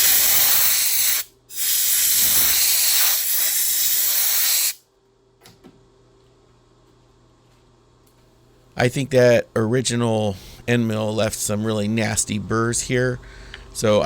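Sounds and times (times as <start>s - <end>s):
air blow gun hissing: 0.0s - 4.8s
faint shop hum: 0.0s - 14.0s.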